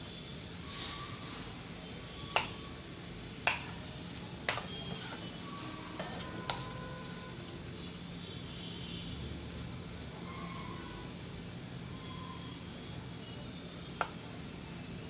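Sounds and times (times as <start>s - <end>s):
faint sizzle: 0.0s - 15.0s
spoon knocking against a pan: 2.3s - 2.6s, 3.4s - 3.8s, 4.5s - 5.3s.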